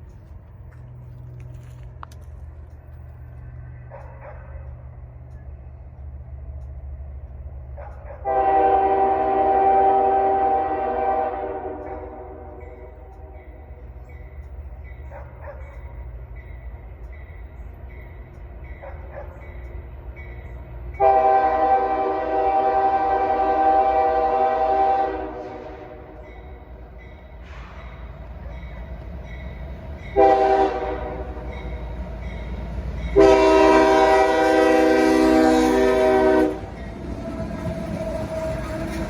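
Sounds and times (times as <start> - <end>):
low rumble of passing train: 0.0 - 39.0
locomotive air horn blasts: 8.2 - 13.5, 21.0 - 26.4, 30.1 - 31.7, 33.0 - 39.0.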